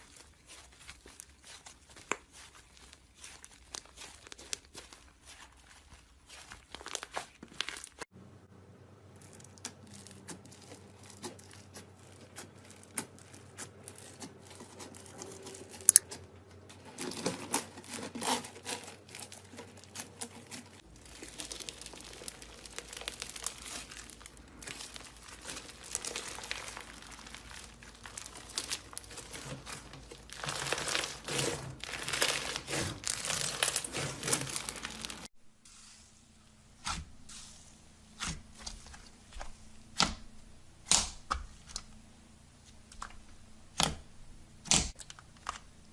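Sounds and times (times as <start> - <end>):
slime kneaded by hand: 0.0 - 8.0, 9.2 - 16.1, 16.9 - 36.1.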